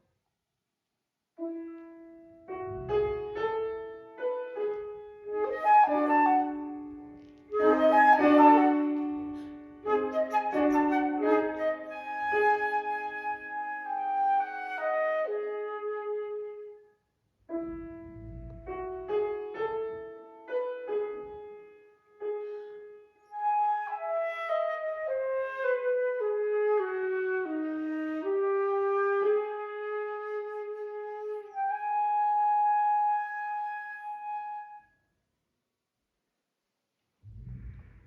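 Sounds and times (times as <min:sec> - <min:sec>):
piano chords: 0:01.9 - 0:12.1
flute melody: 0:05.3 - 0:16.8, 0:23.4 - 0:34.8.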